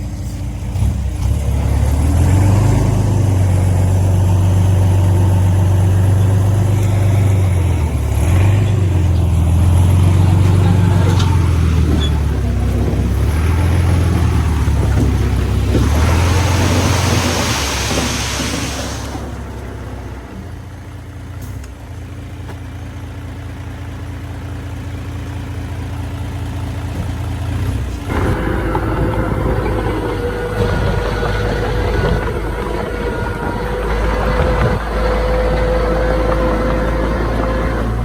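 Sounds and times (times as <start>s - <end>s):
heavy machinery diesel engine: 0.0s - 38.0s
hiss: 15.9s - 19.5s.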